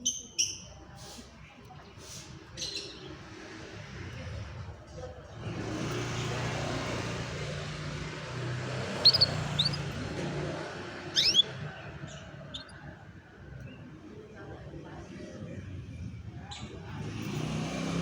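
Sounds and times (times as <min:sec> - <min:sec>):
canary chirping: 0:00.0 - 0:00.9, 0:05.4 - 0:13.9.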